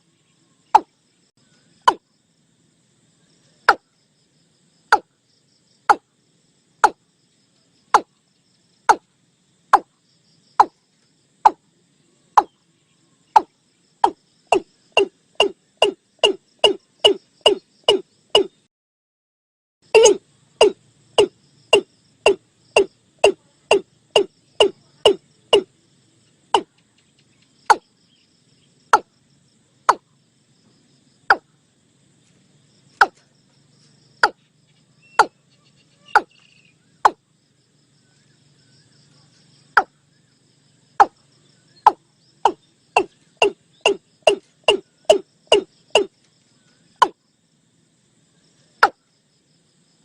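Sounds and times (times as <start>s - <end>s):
watercock calling hollow notes: 20.0s - 25.7s, 36.1s - 36.4s, 41.9s - 46.1s.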